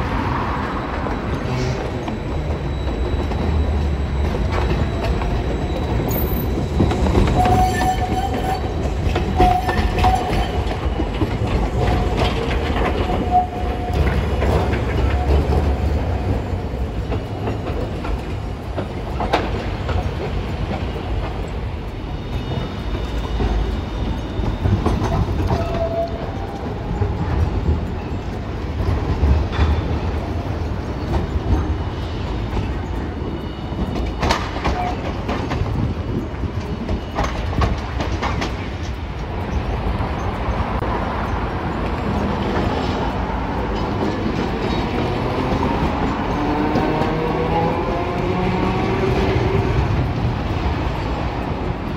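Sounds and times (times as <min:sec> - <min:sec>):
streetcar rumble: 0:00.0 - 0:51.9
tram motor whine: 0:00.0 - 0:51.9
wheel clacks over rail joints: 0:01.8 - 0:51.9
road traffic: 0:37.8 - 0:51.9.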